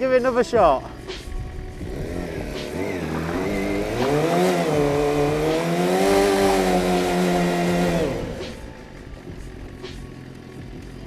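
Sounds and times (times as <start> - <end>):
motorcycle engine revving: 0.6 - 11.0.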